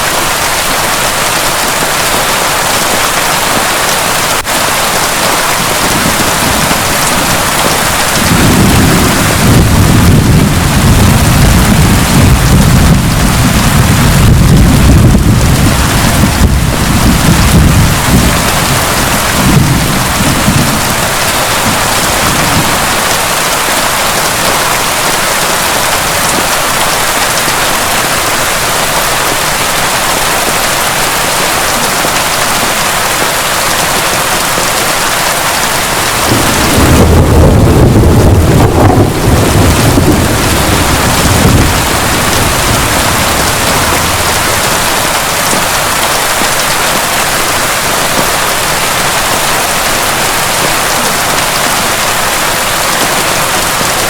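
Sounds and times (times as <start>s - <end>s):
heavy rain: 0.0s - 54.0s
thunder rolling: 4.9s - 24.5s, 35.9s - 48.6s.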